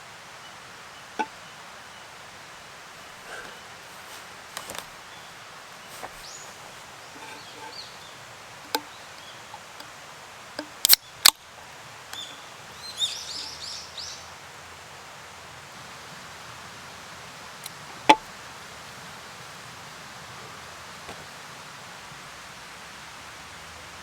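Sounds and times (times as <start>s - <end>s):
steady background hiss: 0.0s - 24.0s
bird chirping: 5.0s - 9.6s, 12.1s - 14.3s.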